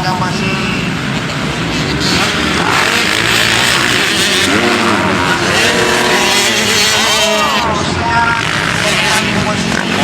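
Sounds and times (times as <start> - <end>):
motocross bike engines revving: 0.0 - 10.0.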